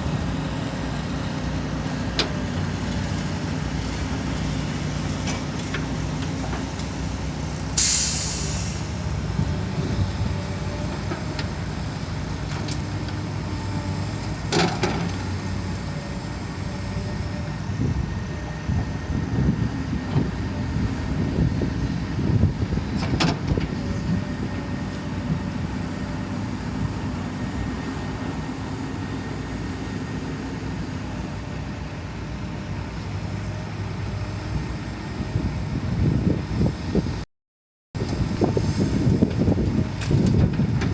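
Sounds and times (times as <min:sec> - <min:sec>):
heavy diesel engines running: 0:00.0 - 0:37.2, 0:38.0 - 0:40.9
short hiss: 0:07.8 - 0:08.9.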